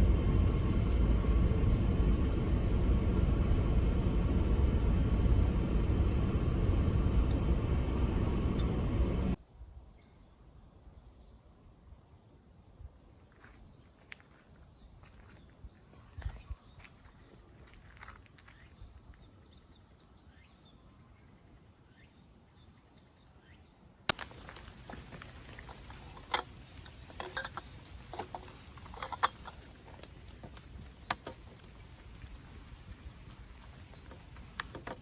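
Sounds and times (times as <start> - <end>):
insects chorus: 23.4 - 35.0
light clicks and knocks: 24.1 - 35.0.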